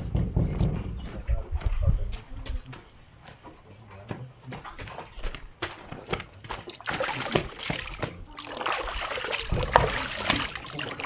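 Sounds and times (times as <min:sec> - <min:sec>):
water splashing and trickling: 0:05.8 - 0:11.0.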